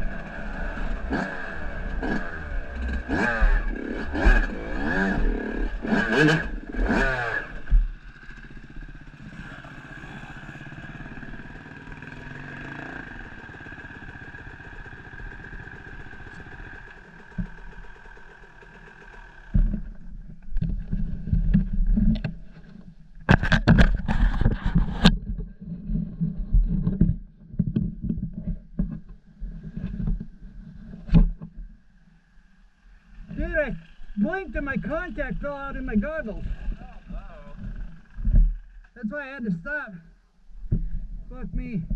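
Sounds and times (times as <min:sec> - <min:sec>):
motorcycle engine revving: 0:00.0 - 0:22.4, 0:32.8 - 0:39.0.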